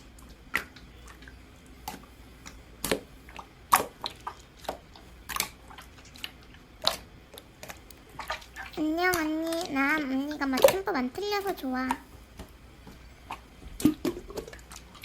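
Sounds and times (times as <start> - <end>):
slime squelching and popping: 0.2 - 9.8.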